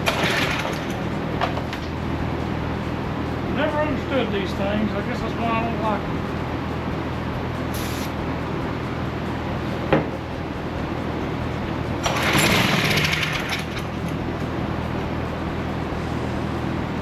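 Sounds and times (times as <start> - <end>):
low mechanical hum: 0.0 - 17.0
hiss of spray or air: 7.7 - 8.2.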